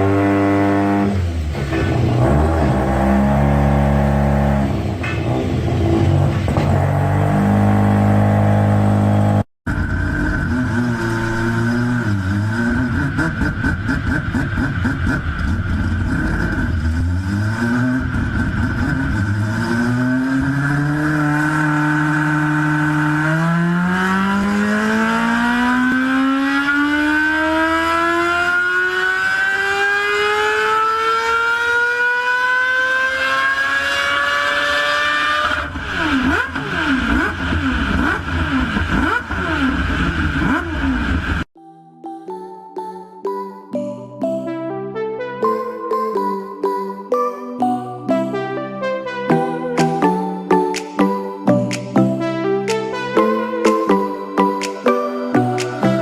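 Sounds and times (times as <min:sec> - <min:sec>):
loud steady engine: 0:00.0 - 0:41.5
rotary engine revving: 0:00.0 - 0:41.5.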